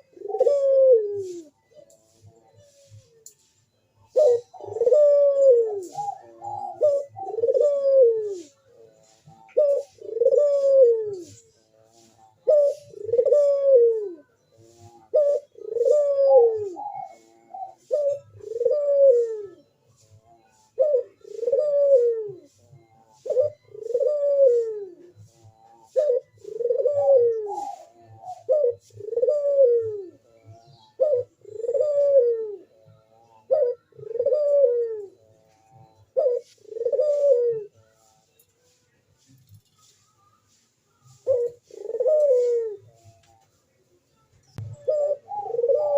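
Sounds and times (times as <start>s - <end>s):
dove cooing: 0.0s - 45.9s.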